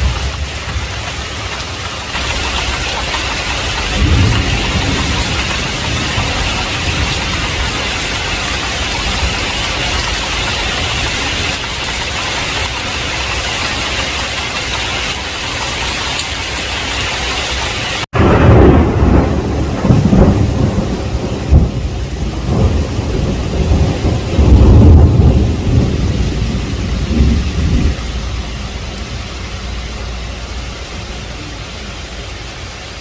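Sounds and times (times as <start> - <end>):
heavy rain hissing: 0.0 - 33.0
thunder rumbling: 0.0 - 33.0.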